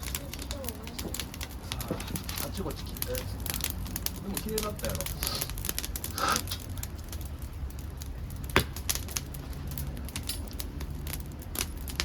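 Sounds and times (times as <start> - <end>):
wood crackling in a stove: 0.0 - 12.0
sharp loud wood crack: 8.4 - 9.3.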